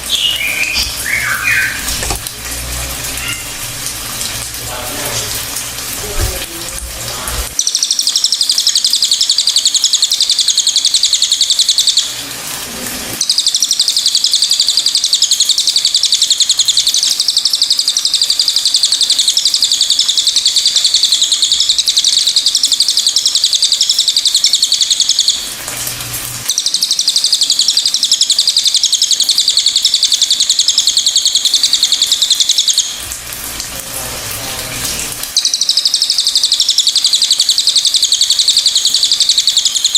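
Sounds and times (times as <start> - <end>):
bird chattering song: 0.0 - 2.2, 3.2 - 3.5, 7.6 - 12.2, 13.2 - 25.5, 26.5 - 33.0, 35.4 - 39.9.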